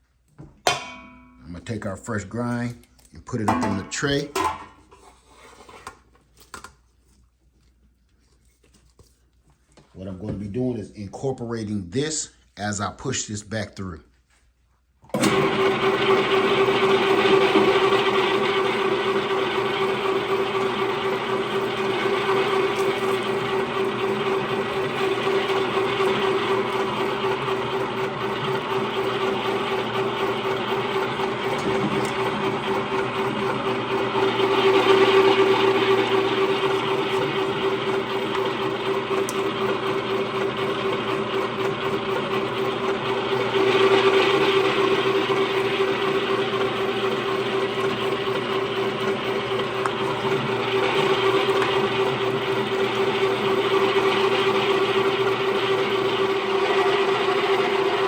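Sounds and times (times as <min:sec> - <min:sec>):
meat grinder motor hum: 0:15.1 - 0:58.0.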